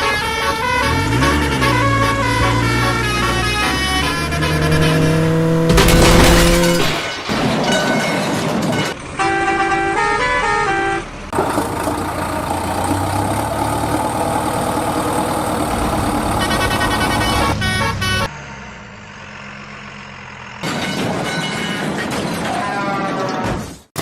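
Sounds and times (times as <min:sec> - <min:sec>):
horn short toots: 0:00.0 - 0:06.9
vehicle engine running: 0:00.0 - 0:07.1, 0:08.7 - 0:20.7.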